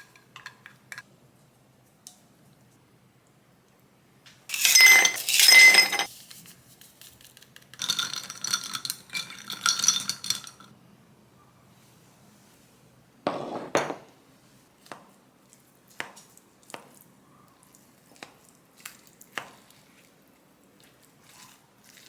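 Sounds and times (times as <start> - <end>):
dishes and utensils clattering: 4.5 - 6.1.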